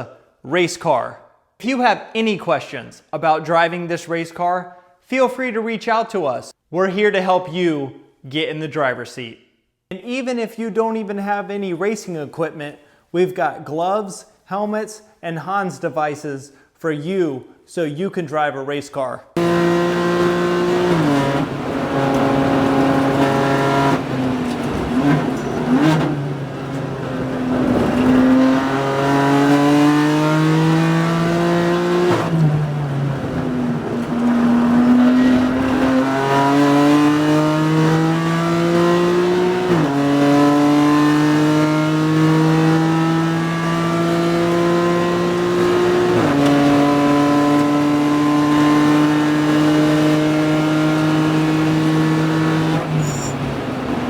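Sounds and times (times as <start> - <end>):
race car engine accelerating: 19.4 - 54.0.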